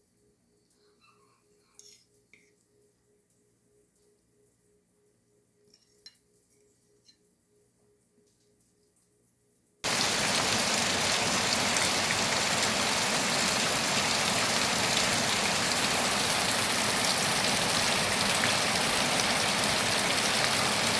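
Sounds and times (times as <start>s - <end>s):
heavy rain: 9.9s - 20.9s.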